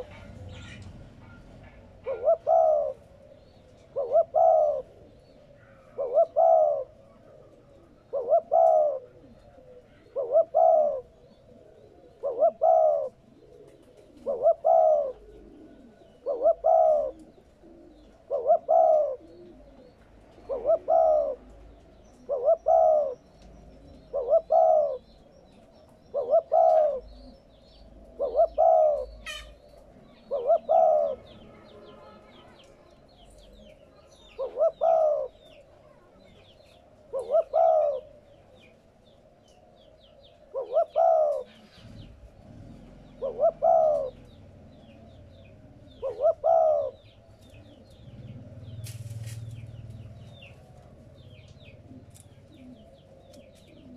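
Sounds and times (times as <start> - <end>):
dove cooing: 0.0 - 53.9.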